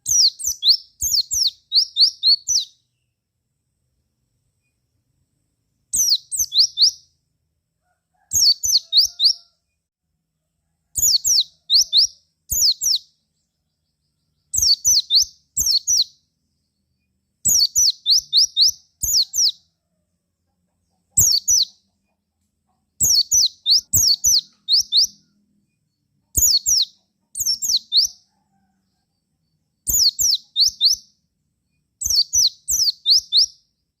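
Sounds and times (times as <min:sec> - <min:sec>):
bird high downslurred chirps: 0:00.0 - 0:03.0, 0:05.9 - 0:07.1, 0:08.2 - 0:09.5, 0:11.0 - 0:13.1, 0:14.4 - 0:16.2, 0:17.5 - 0:19.7, 0:21.1 - 0:21.8, 0:23.0 - 0:25.3, 0:26.3 - 0:28.3, 0:29.9 - 0:31.1, 0:32.0 - 0:33.6.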